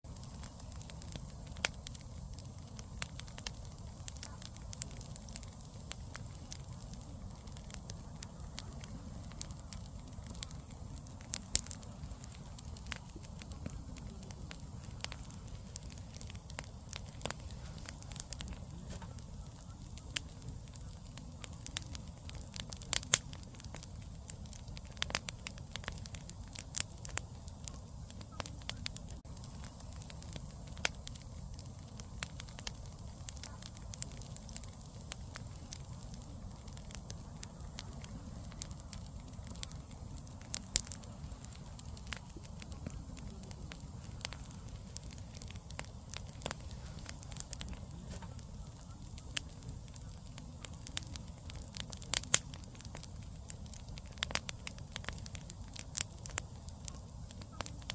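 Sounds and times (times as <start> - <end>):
campfire crackling and popping: 0.0 - 57.9.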